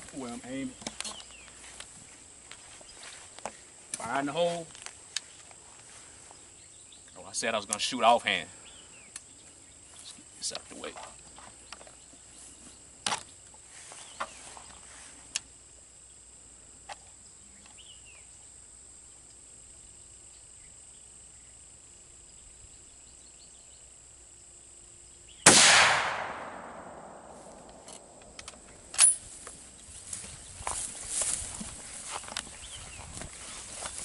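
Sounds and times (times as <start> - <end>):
rifle shot: 25.4 - 28.4
rifle handling clicks and knocks: 27.4 - 29.6.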